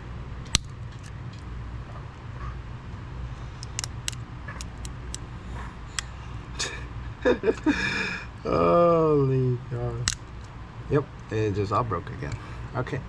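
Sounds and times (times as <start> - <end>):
steady low hum: 0.0 - 13.0
plastic clips clicking and snapping: 3.6 - 5.2, 10.0 - 10.2.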